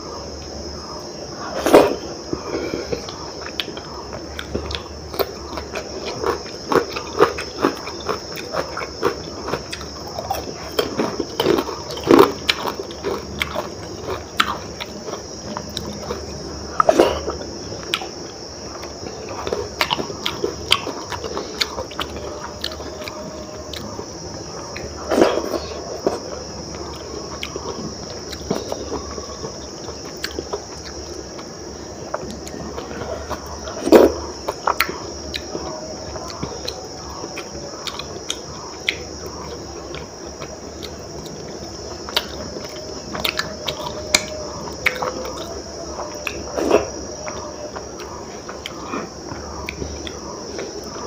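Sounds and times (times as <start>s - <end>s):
steady high hiss: 0.0s - 51.0s
wet chewing: 1.6s - 51.0s.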